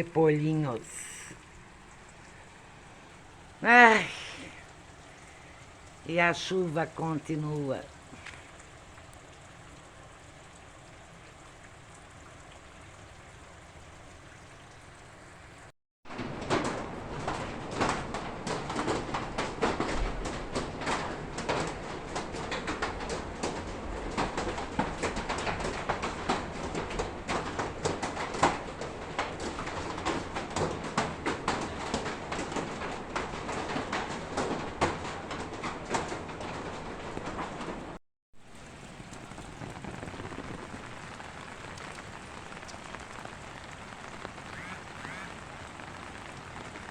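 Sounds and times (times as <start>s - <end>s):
rain patter: 0.0s - 46.9s
faint drip ticks: 4.6s - 6.0s, 7.8s - 9.9s, 38.6s - 46.8s.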